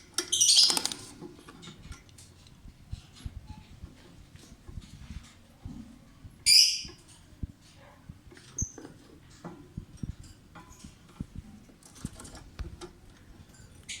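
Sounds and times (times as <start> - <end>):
high bird chirp: 0.3 - 0.9, 6.5 - 7.0
bird scratching and shuffling: 0.5 - 13.7.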